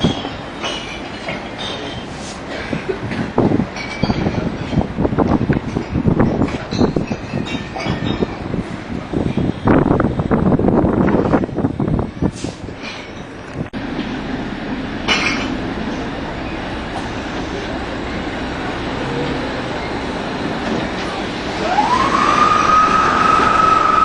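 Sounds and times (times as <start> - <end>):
steady low rumble: 8.4 - 24.0
train whistle: 21.6 - 24.0.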